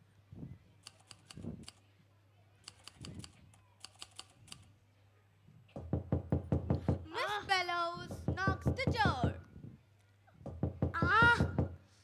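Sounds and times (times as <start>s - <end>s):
rapid louder knocks: 5.8s - 7.0s, 8.1s - 9.4s, 10.5s - 11.8s
dull thumps: 8.0s - 9.4s.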